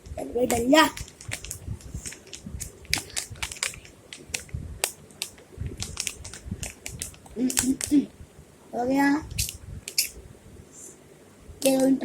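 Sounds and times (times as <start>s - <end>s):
plastic packaging crinkling: 0.5s - 4.4s, 5.2s - 8.0s.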